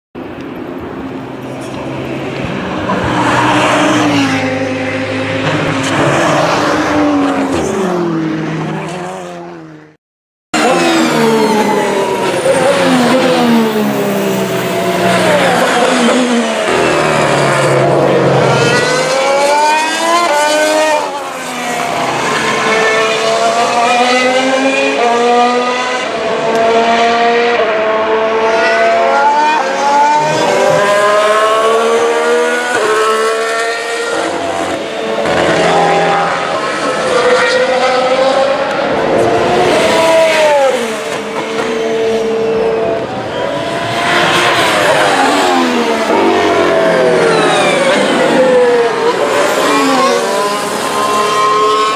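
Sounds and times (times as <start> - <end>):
racing cars accelerating past: 10.6 - 51.9.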